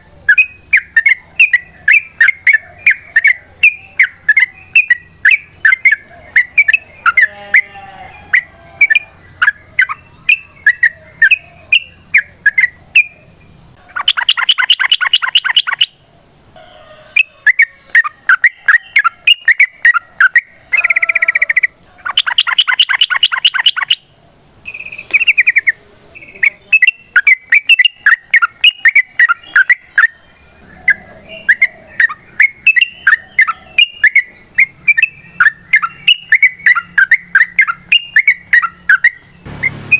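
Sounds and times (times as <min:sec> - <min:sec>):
bird chattering song: 0:00.0 - 0:16.0, 0:17.2 - 0:39.9
bird rapid trills: 0:13.9 - 0:16.0, 0:17.1 - 0:24.1, 0:30.8 - 0:39.9.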